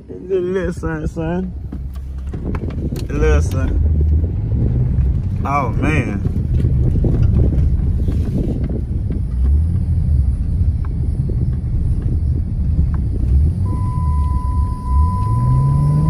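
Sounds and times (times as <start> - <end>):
car engine rumbling under throttle: 0.0 - 16.0
steady high beep: 13.6 - 16.0.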